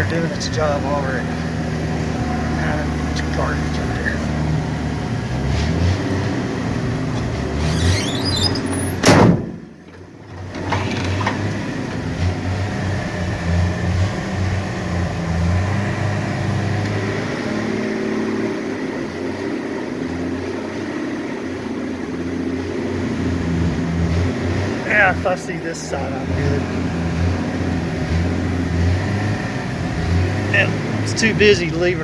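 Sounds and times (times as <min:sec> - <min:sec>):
truck engine running: 0:00.0 - 0:32.0
short squeak: 0:07.6 - 0:09.4
loud thump: 0:08.4 - 0:09.9.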